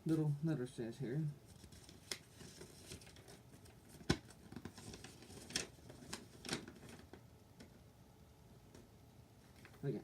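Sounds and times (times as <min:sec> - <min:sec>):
paper rustling: 0:01.5 - 0:07.2.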